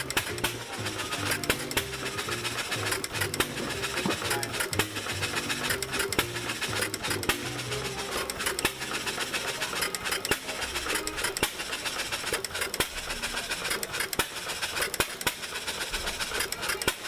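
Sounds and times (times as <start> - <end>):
engine firing sharp pops: 0.0 - 7.6, 11.4 - 17.0
mechanical clatter: 0.0 - 17.0.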